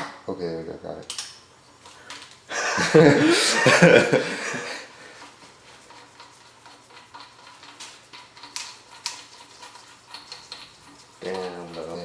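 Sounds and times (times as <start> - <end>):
metallic ticking and clinking of tools: 5.9 - 12.0.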